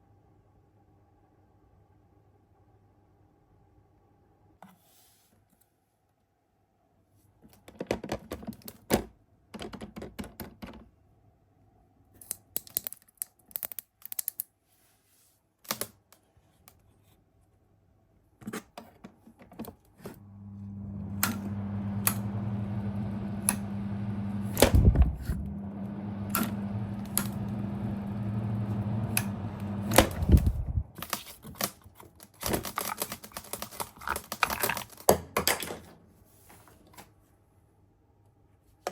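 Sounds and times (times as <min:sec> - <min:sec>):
fan motor humming: 0:20.2 - 0:31.2
fan switch clicks and rattles: 0:24.5 - 0:25.5, 0:29.0 - 0:34.5.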